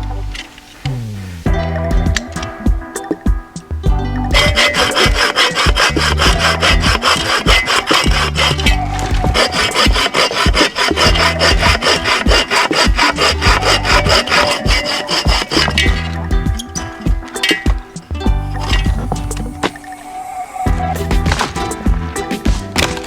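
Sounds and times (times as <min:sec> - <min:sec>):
music with steady beat: 0:00.0 - 0:20.0, 0:20.7 - 0:23.0
hand saw cutting wood: 0:04.3 - 0:16.2.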